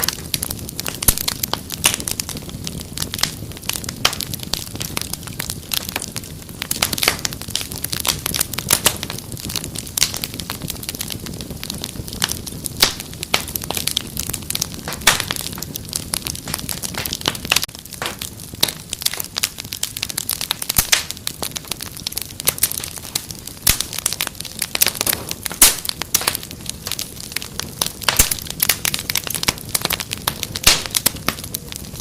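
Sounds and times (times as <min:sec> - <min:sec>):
fire rumbling: 0:00.0 - 0:32.0
wood fire crackling: 0:00.0 - 0:32.0.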